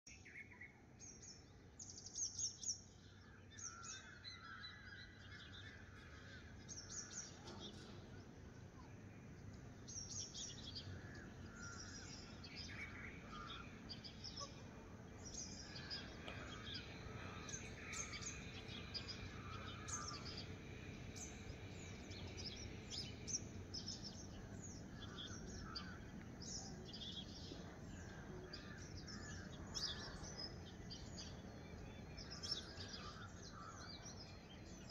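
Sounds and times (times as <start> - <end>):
birds chirping and warbling: 0.1 - 34.9
faint low background noise: 0.1 - 34.9.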